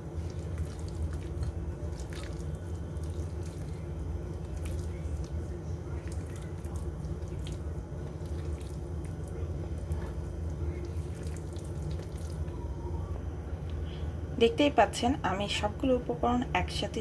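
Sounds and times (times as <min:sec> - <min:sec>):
hands squelching wet batter: 0:00.0 - 0:12.6
steady low hum: 0:00.0 - 0:17.0.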